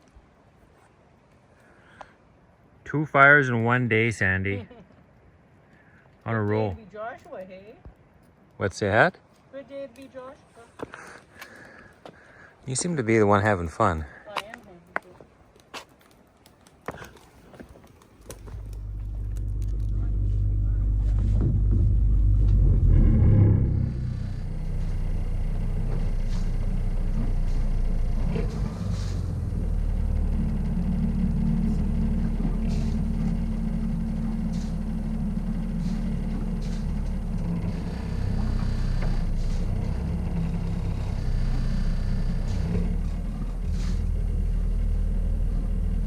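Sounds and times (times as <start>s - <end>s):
boat motor running: 18.2s - 46.0s.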